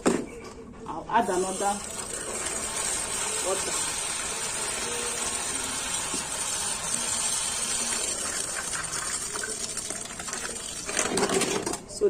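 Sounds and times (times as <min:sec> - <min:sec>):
water pouring into a bowl: 0:01.4 - 0:11.5.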